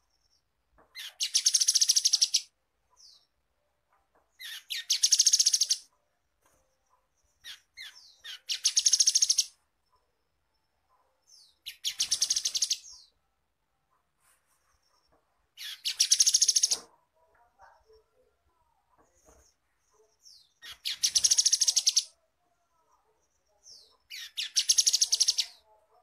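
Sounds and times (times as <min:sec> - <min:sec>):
bird singing rapid trills: 0:01.0 - 0:03.3, 0:07.4 - 0:09.6, 0:11.4 - 0:13.1, 0:15.6 - 0:16.8, 0:20.2 - 0:22.1, 0:24.0 - 0:25.6.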